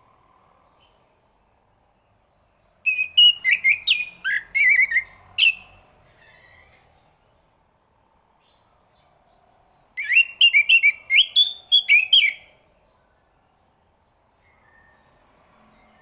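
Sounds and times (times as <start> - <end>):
thrush whistled song: 2.8 - 5.8, 9.6 - 12.6.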